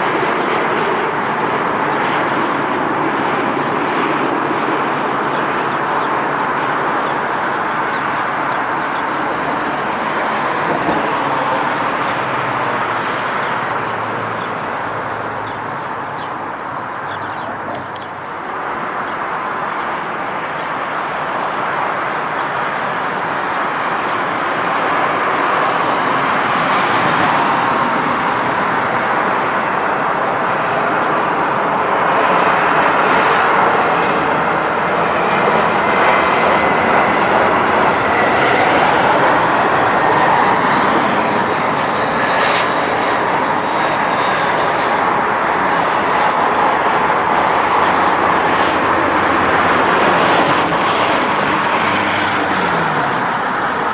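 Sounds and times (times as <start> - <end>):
jet airliner engines: 0.0 - 53.9
thin high whine: 17.6 - 31.7.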